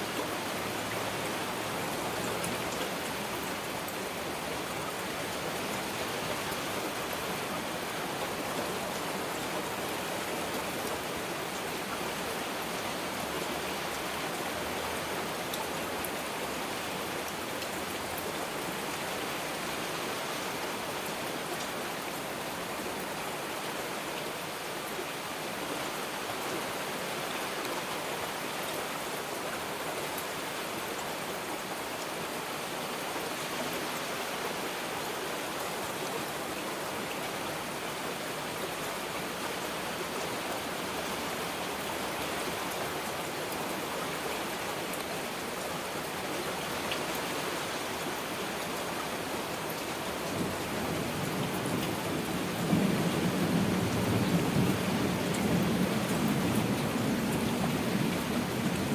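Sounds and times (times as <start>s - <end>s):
heavy rain falling: 25.9s - 58.9s.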